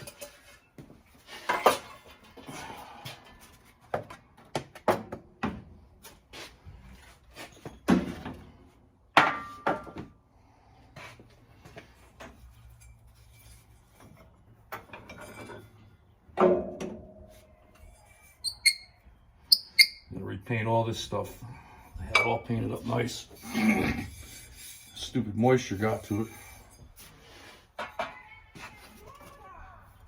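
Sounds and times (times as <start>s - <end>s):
metal tools and parts clanking: 0.0s - 3.3s, 12.2s - 18.9s.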